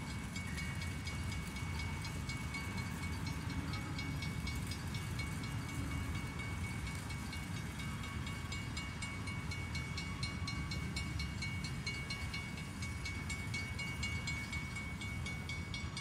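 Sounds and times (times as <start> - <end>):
freight train rumble: 0.0 - 16.0.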